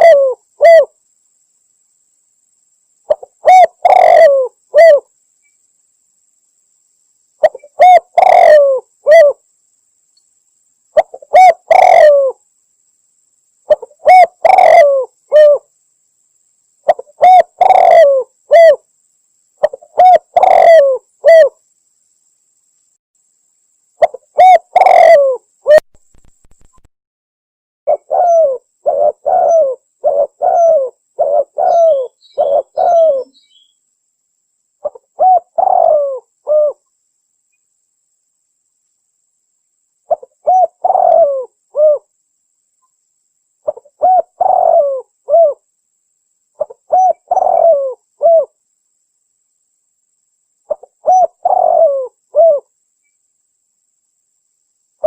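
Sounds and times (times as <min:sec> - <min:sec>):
dove cooing: 0:00.0 - 0:00.9, 0:03.1 - 0:05.1, 0:07.4 - 0:09.4, 0:11.0 - 0:12.4, 0:13.7 - 0:15.7, 0:16.9 - 0:18.8, 0:19.6 - 0:21.6, 0:24.0 - 0:25.8, 0:27.9 - 0:33.4, 0:34.8 - 0:36.8, 0:40.1 - 0:42.1, 0:43.6 - 0:45.6, 0:46.6 - 0:48.6, 0:50.7 - 0:52.7.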